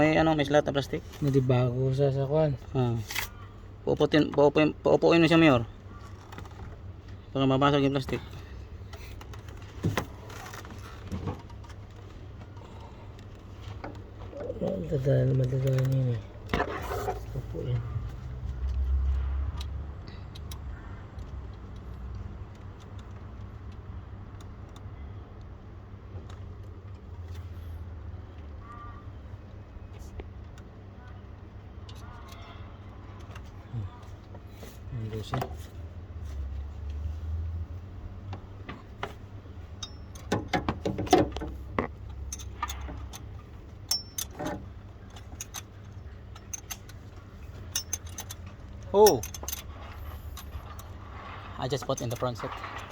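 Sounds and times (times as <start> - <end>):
vehicle engine rumbling: 0.0 - 52.9
low steady hum: 21.2 - 52.9
hand tools clinking: 39.7 - 52.9.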